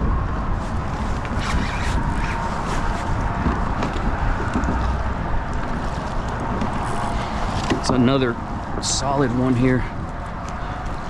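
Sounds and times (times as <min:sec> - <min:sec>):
wind noise on microphone: 0:00.0 - 0:11.0
water against kayak hull: 0:00.7 - 0:08.0.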